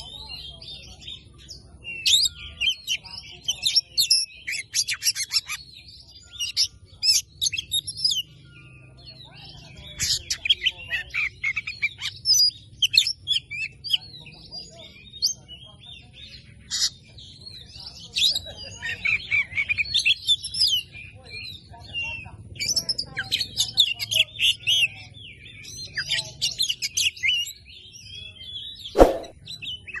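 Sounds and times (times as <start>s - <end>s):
bird singing whistles and trills: 1.9s - 9.8s.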